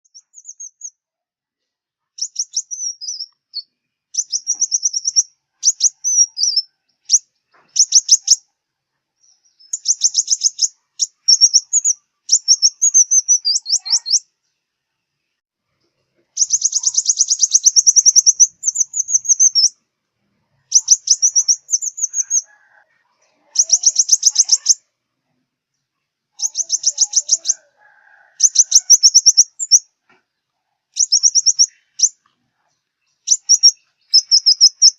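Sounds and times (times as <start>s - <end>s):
high-pitched bird trilling: 0.1s - 0.9s, 2.2s - 8.4s, 9.5s - 14.3s, 16.4s - 19.8s, 20.6s - 24.8s, 26.4s - 29.9s, 31.0s - 32.2s, 33.2s - 34.9s.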